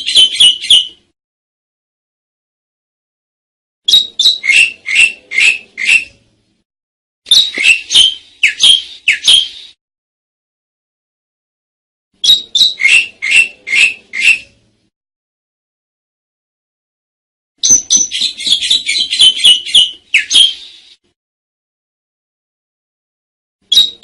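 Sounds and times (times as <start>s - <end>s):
starling calling repeated notes: 0.0s - 1.1s, 3.9s - 6.2s, 7.3s - 9.8s, 12.2s - 14.6s, 17.6s - 21.0s, 23.6s - 24.0s.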